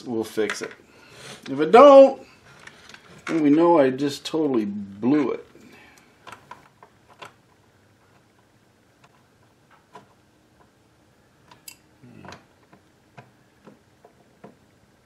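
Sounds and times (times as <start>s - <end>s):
small parts clicking and tapping: 4.4s - 10.8s, 11.4s - 14.7s.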